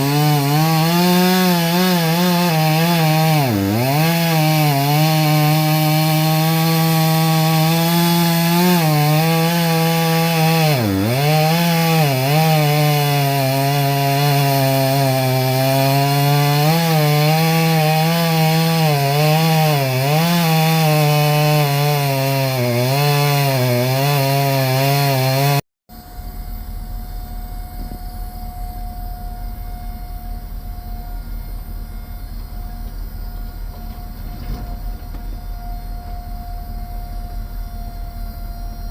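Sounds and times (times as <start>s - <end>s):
chainsaw cutting wood: 0.0s - 25.6s, 29.4s - 38.9s
faint whine: 25.9s - 38.9s.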